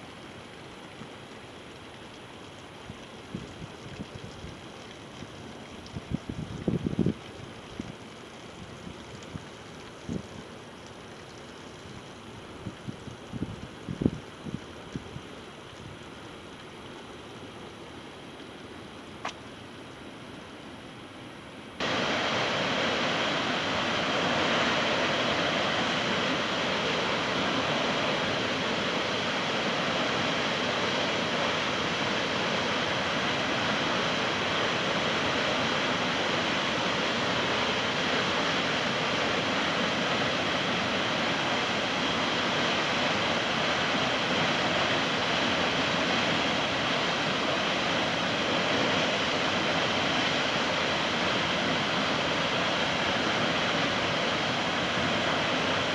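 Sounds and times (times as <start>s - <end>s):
rushing flowing water: 21.8s - 55.9s.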